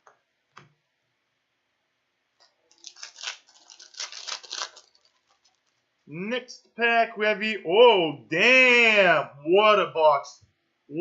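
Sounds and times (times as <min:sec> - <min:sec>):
foil wrapper tearing and crinkling: 0:02.7 - 0:05.8.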